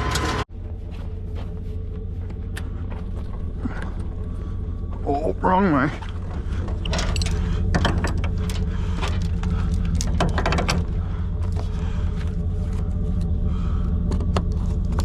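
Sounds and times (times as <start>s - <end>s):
vehicle engine rumbling: 0.0s - 15.0s
clicks and rattles: 6.0s - 11.8s.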